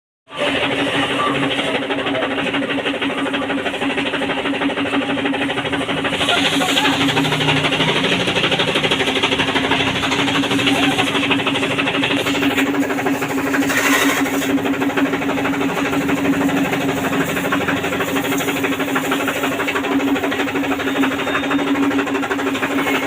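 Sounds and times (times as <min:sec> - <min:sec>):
washing machine running: 0:00.3 - 0:23.0.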